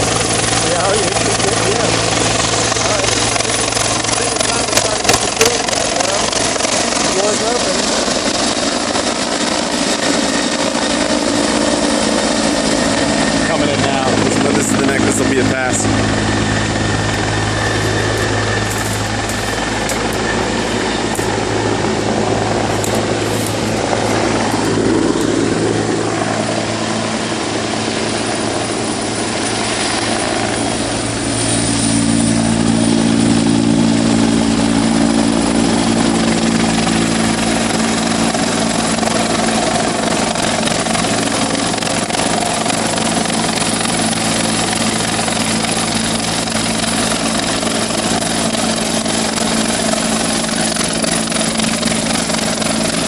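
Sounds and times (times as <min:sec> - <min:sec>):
helicopter rotor and turbine: 0:00.0 - 0:53.0.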